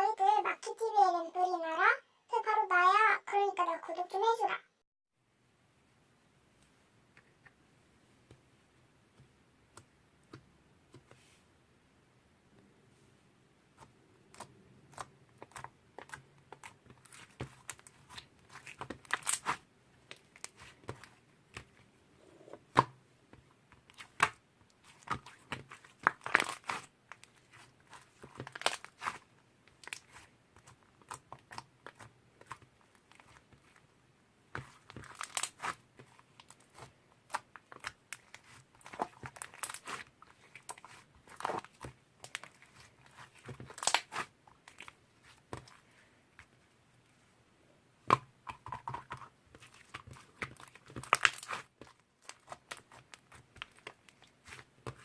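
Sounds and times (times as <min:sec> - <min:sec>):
hands squishing sticky slime: 0:13.7 - 0:21.9, 0:22.6 - 0:33.9, 0:34.5 - 0:46.6, 0:48.0 - 0:55.0.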